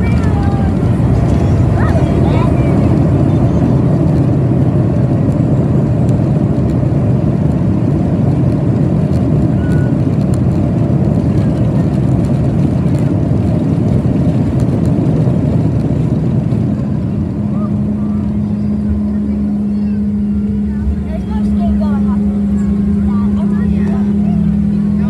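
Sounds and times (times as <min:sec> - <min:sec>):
rushing air: 0:00.0 - 0:09.1
airplane engines rumbling: 0:00.0 - 0:25.0.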